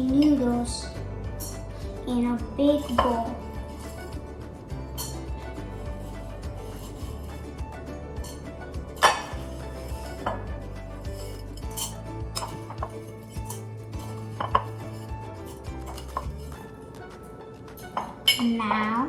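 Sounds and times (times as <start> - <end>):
utensil clinking on bowl: 2.6 - 4.2, 4.9 - 7.4, 11.1 - 19.0.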